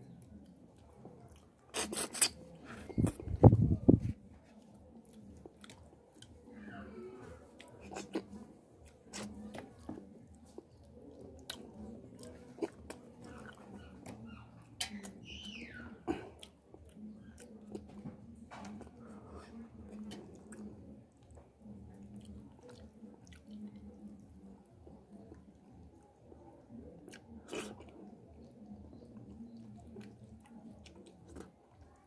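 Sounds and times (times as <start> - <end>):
person chewing food: 0.0 - 15.2, 16.1 - 32.0
wet mouth clicks and smacks: 1.3 - 3.6.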